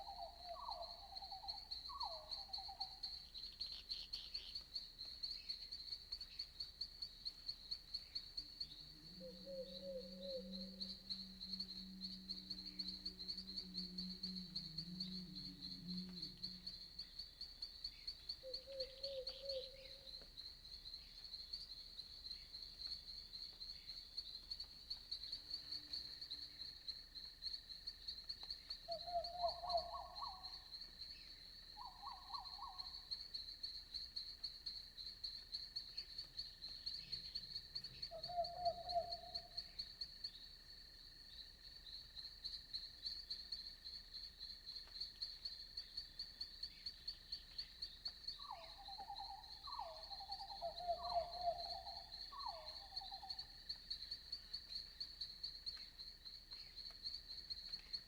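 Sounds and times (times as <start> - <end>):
crickets chirping: 0.0 - 58.0
night forest ambience: 0.0 - 58.0
frog calls: 38.0 - 39.6, 48.4 - 53.6.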